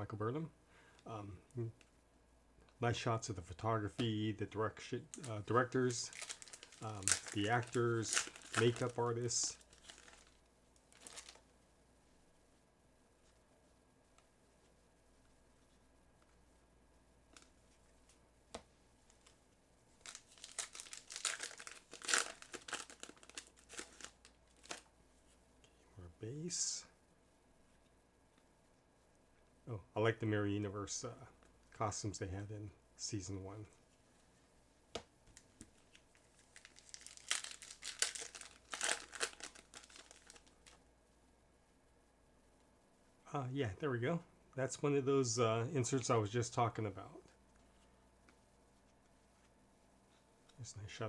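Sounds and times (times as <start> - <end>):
wrapper tearing and crinkling: 5.1 - 11.4, 20.0 - 24.9, 35.9 - 40.8.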